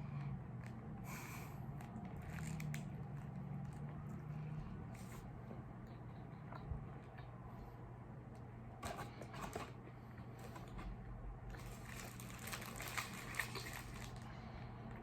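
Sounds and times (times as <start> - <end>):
crackly clicks: 1.8 - 4.2.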